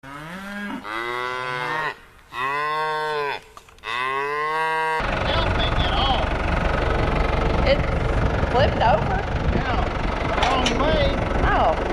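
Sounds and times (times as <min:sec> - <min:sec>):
cattle mooing: 0:00.0 - 0:05.0.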